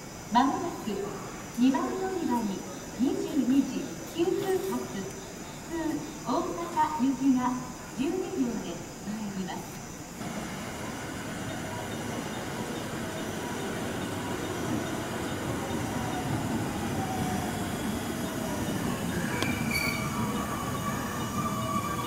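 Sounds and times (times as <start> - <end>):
train wheels rumbling on rails: 10.2 - 22.0
faint squealing tones: 12.6 - 22.0.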